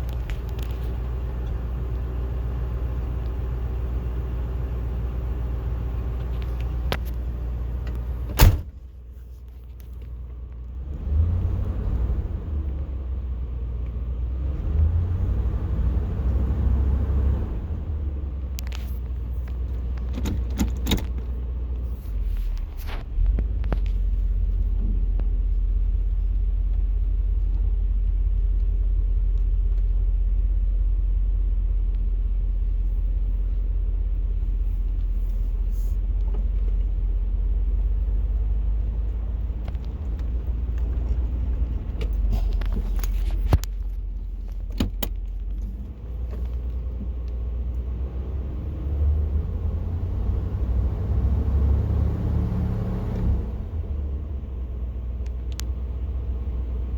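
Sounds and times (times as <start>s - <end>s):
engine running with deep note: 0.0s - 56.9s.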